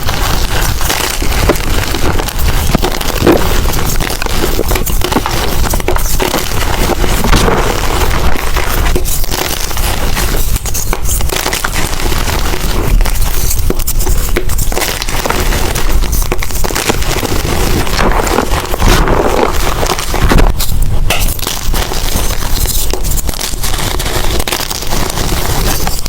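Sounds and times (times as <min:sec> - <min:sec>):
chalk crackling and crunching: 0:00.0 - 0:26.0.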